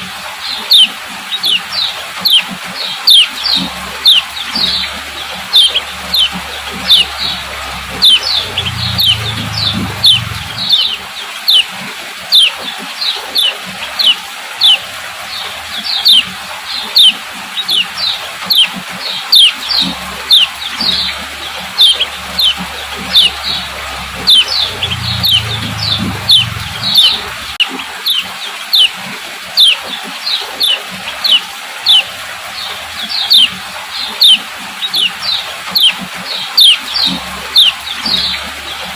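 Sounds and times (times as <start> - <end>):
bird chip calls: 0.0 - 38.9.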